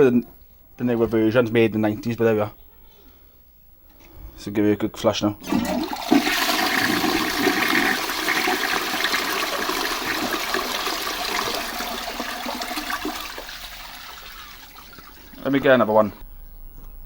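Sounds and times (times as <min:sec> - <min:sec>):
toilet flushing: 0:05.4 - 0:15.7.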